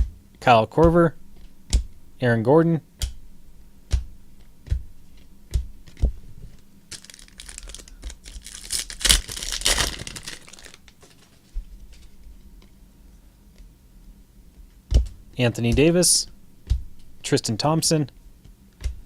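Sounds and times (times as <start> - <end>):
card packaging crinkling and tearing: 6.9 - 11.5.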